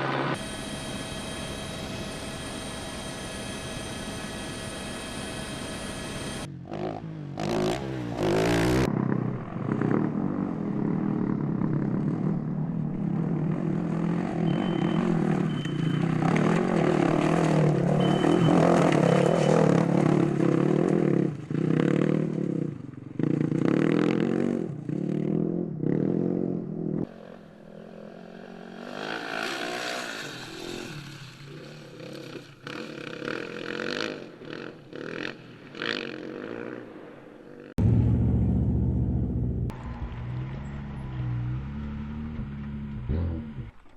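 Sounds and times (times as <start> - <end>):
rally car engines running hard: 6.0 - 21.7.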